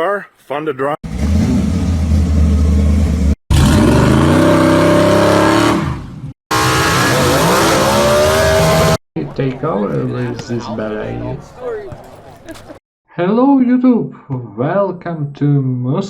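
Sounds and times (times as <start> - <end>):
drag car engine rumbling: 1.0 - 5.8
drag car accelerating: 1.0 - 9.0
drag car engine revving: 1.0 - 9.0.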